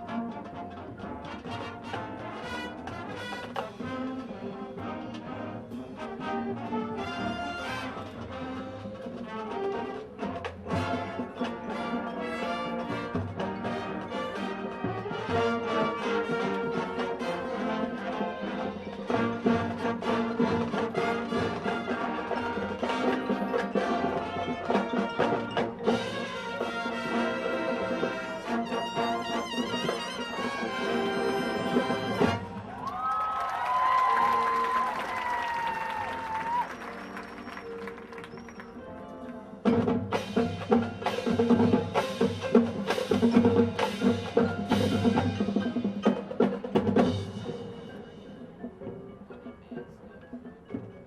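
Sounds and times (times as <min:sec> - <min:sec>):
marching band playing: 0:00.0 - 0:51.0.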